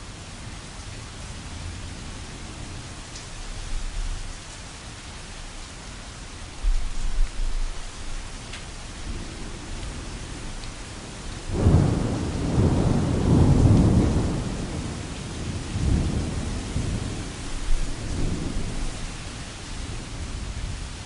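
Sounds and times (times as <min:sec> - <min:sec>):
rain falling on canvas: 0:00.0 - 0:21.0
thunder rumbling: 0:09.0 - 0:20.8.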